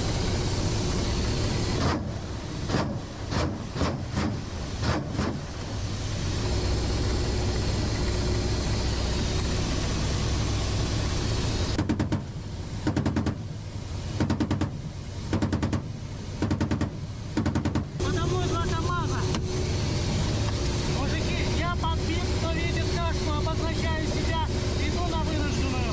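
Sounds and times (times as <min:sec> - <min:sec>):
helicopter engine and rotor noise: 0:00.0 - 0:03.2, 0:05.7 - 0:13.7, 0:17.8 - 0:25.9.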